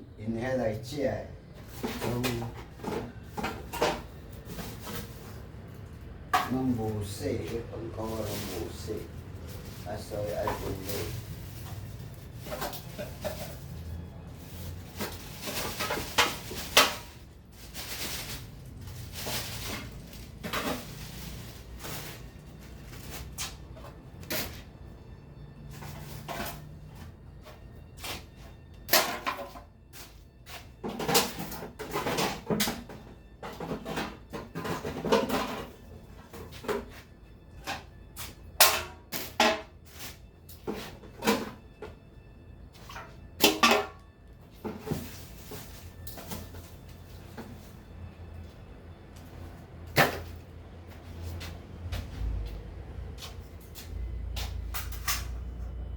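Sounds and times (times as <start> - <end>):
bags rustling: 6.7 - 27.4, 44.5 - 48.6
containers knocking and clattering: 30.8 - 36.9.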